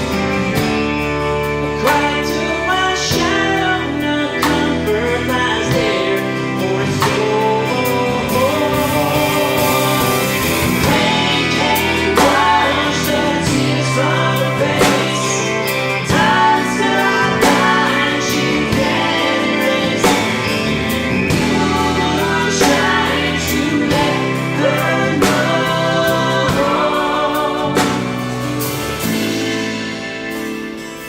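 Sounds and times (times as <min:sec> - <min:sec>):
acoustic guitar: 0:00.0 - 0:31.0
bass: 0:00.0 - 0:31.0
drums: 0:00.0 - 0:31.0
keyboards: 0:00.0 - 0:31.0
person singing: 0:01.6 - 0:29.4.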